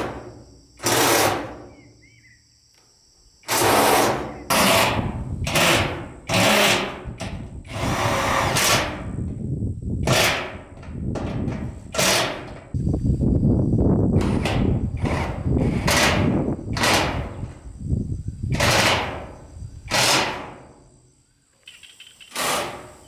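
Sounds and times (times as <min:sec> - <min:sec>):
power tool bursts: 0:03.5 - 0:07.0, 0:22.3 - 0:23.0.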